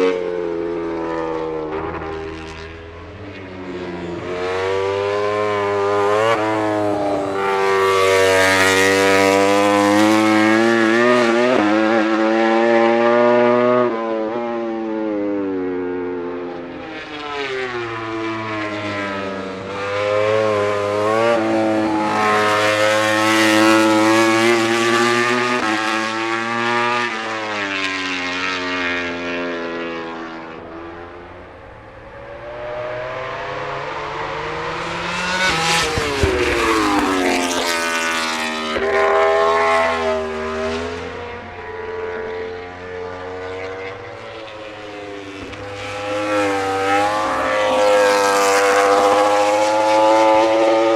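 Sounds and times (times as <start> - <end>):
motorcycle passing by: 0.0 - 50.9
racing motorcycles at full throttle: 0.0 - 50.9.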